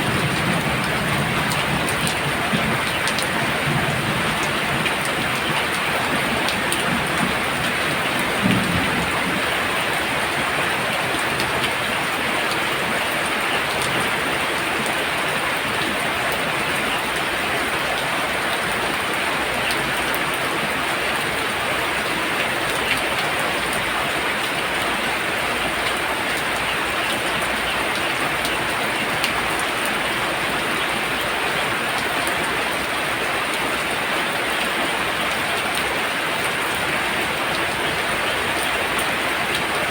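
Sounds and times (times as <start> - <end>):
heavy rain hissing: 0.0 - 14.4.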